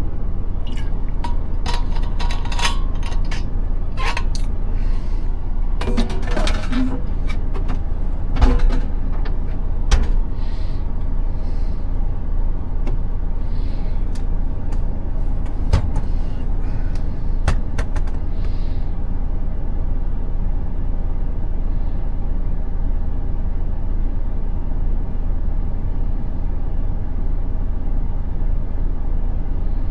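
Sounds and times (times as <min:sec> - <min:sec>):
diesel truck engine running: 0:00.0 - 0:19.1.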